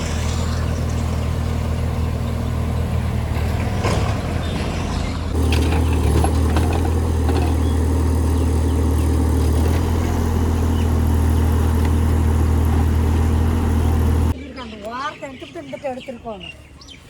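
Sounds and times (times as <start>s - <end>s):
engine running: 0.0s - 14.4s.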